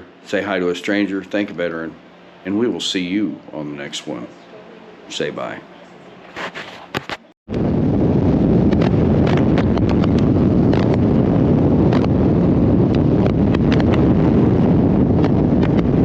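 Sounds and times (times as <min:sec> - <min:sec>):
wind buffeting microphone: 0:07.5 - 0:16.0
wind pops on microphone: 0:07.5 - 0:16.0.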